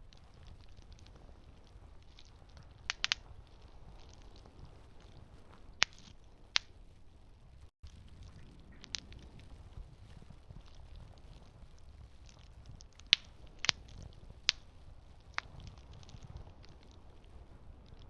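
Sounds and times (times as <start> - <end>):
burning wood crackling and popping: 0.0 - 18.0
campfire rumble: 0.0 - 18.0.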